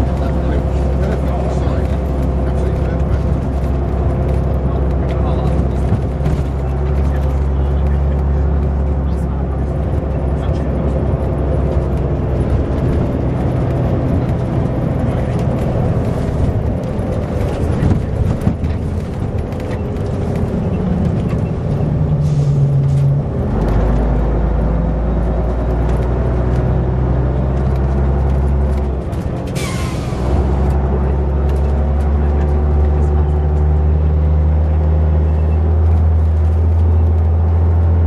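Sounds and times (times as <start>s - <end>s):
diesel coach engine running: 0.0s - 38.0s.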